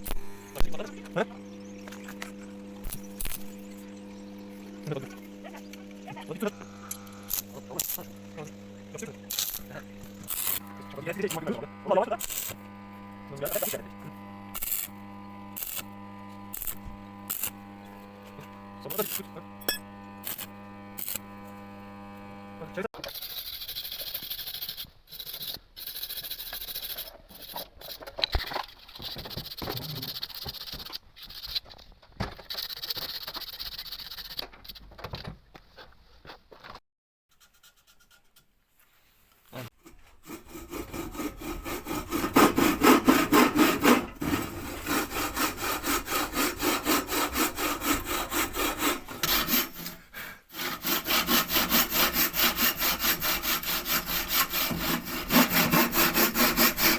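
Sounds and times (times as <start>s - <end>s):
motor hum: 0.0s - 23.3s, 39.8s - 56.9s
saw or file strokes on steel: 23.0s - 28.0s, 37.3s - 56.9s
scraping on metal: 39.8s - 56.9s.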